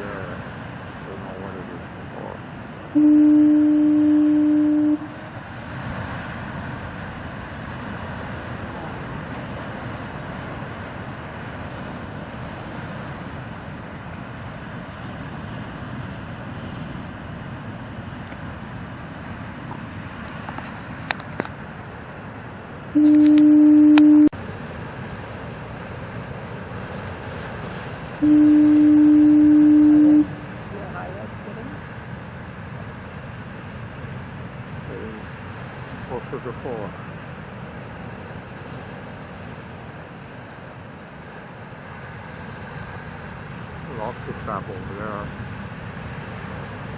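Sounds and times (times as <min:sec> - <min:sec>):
storm surf rushing onto shore: 0:00.0 - 0:46.9
foghorn low blast: 0:02.9 - 0:05.5, 0:22.9 - 0:24.4, 0:28.2 - 0:30.7.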